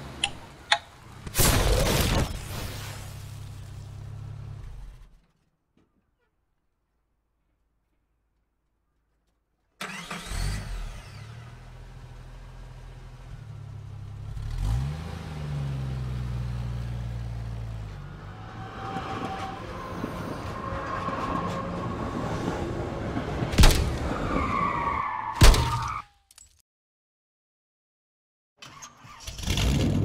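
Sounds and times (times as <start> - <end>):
car engine running and revving: 10.2 - 23.1.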